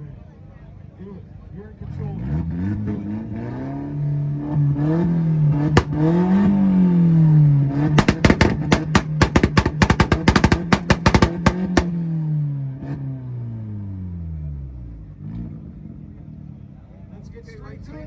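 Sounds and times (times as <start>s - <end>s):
car engine revving: 2.0s - 14.0s
exhaust pops and bangs: 5.5s - 12.1s.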